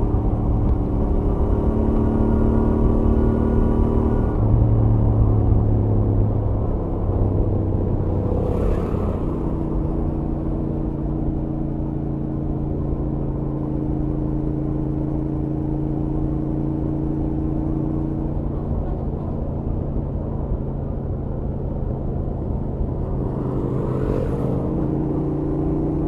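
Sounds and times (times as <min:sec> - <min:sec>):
wind noise: 0:00.0 - 0:11.2
motorcycle engine at highway speed: 0:00.0 - 0:26.0
road noise: 0:00.0 - 0:26.0.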